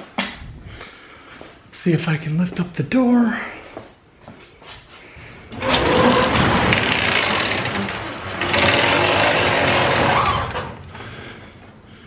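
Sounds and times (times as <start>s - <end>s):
garage door rattling on tracks: 5.5s - 11.0s.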